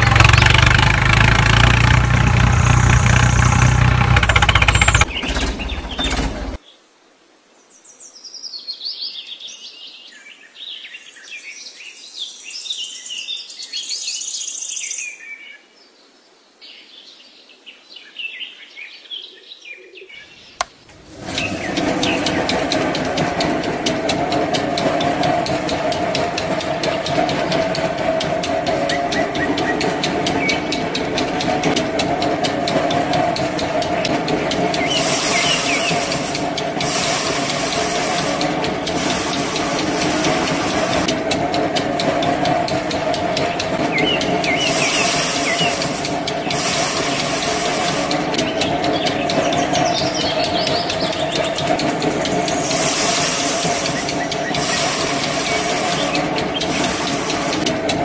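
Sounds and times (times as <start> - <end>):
small motor with rattling drum: 0.0 - 6.6, 20.9 - 58.0
birds chirping: 4.2 - 6.6, 20.2 - 58.0
rice stalks scratching in drum: 20.9 - 58.0.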